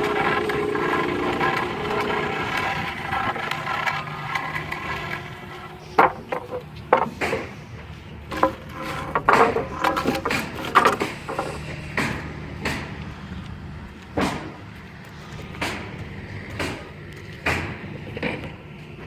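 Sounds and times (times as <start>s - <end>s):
scrap lumber knocking: 0.0s - 12.9s
steady low hum: 0.0s - 18.8s.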